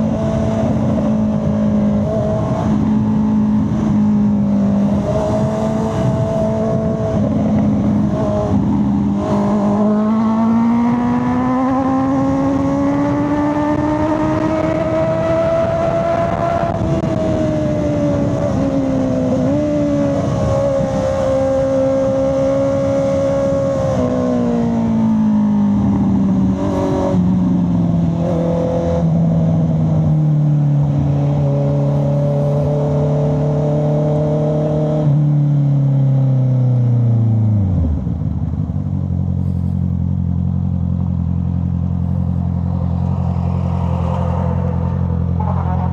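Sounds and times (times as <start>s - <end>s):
motorcycle engine slowing and idling: 35.1s - 45.9s.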